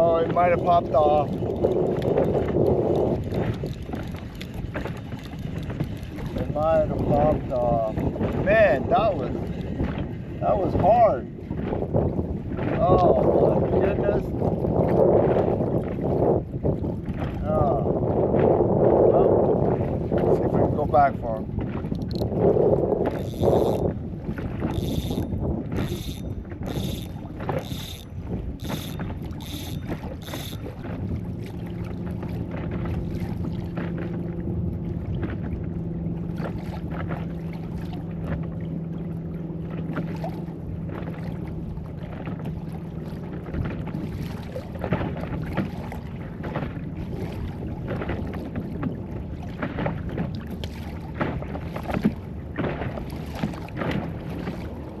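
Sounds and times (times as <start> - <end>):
water moving around boat: 0.0 - 55.0
wind on microphone: 0.0 - 55.0
motor hum: 21.9 - 33.8
even ticking: 22.0 - 22.3, 23.1 - 23.9, 24.7 - 30.8.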